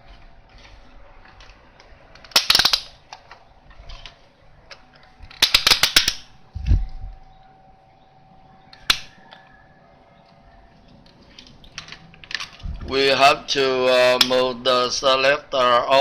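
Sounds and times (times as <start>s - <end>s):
plastic parts and tools clattering: 0.5s - 6.2s, 11.2s - 12.8s.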